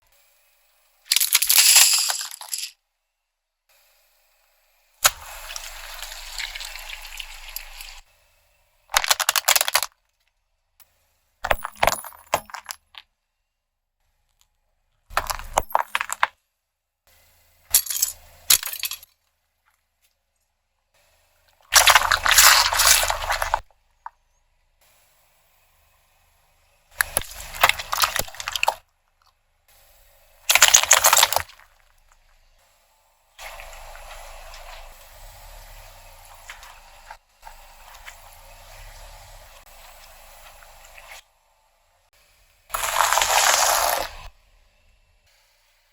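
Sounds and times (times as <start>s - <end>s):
objects crunching under car tyre: 21.7s - 23.6s, 27.0s - 28.8s, 30.5s - 31.8s, 42.7s - 44.3s.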